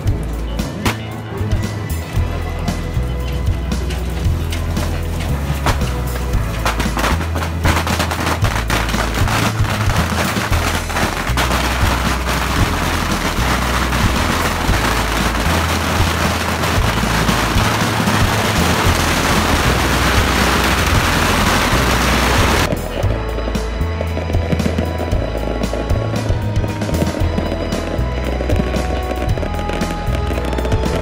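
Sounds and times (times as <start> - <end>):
bottle rockets crackling pops: 0.8 - 1.1, 4.6 - 22.9.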